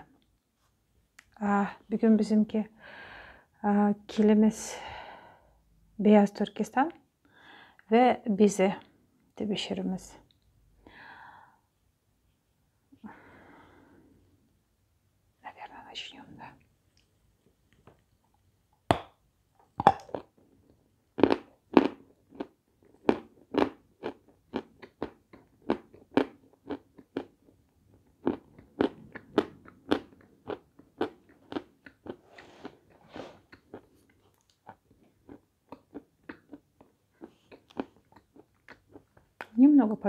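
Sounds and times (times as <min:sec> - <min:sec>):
crisp chewing crunches: 0:21.2 - 0:39.6.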